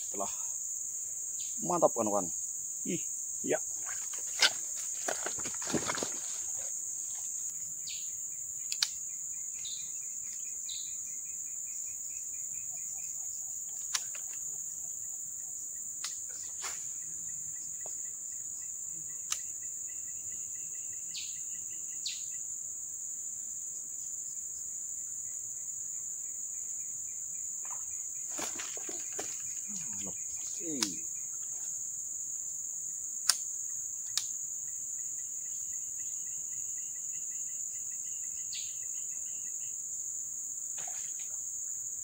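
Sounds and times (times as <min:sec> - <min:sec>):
insects droning: 0:00.0 - 0:42.0
sharp clicks: 0:08.7 - 0:09.0, 0:33.2 - 0:33.4.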